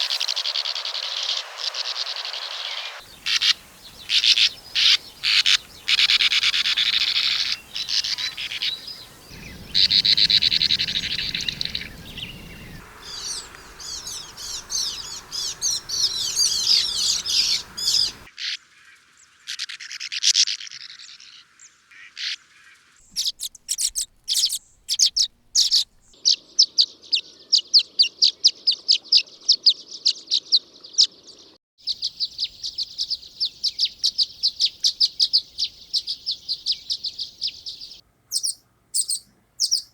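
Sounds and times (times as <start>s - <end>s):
swallows twittering: 0.0s - 18.3s, 23.0s - 26.2s, 31.0s - 39.9s.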